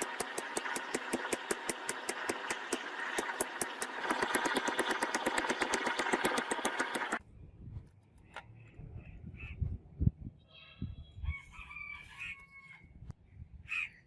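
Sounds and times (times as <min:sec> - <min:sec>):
machine clattering and whirring: 0:00.0 - 0:07.2.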